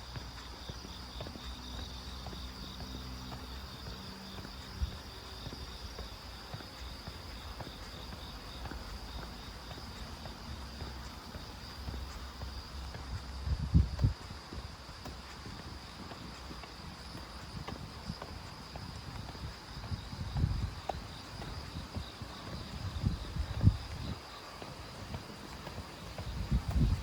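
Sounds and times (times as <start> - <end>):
footsteps on road: 0.0 - 27.0.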